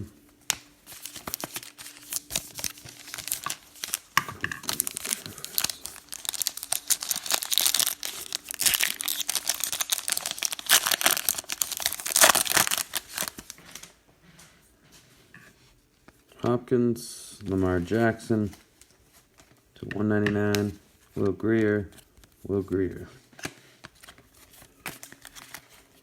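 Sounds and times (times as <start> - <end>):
card pack wrappers crinkling: 0.5 - 14.0, 23.4 - 26.0.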